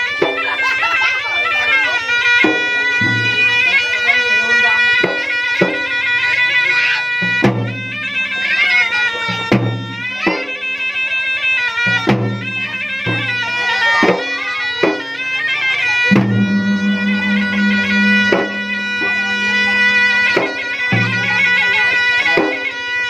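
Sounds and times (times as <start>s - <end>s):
drums struck: 16.1s - 21.3s
low droning note: 16.1s - 22.0s
shrill reed pipe melody: 16.1s - 22.2s.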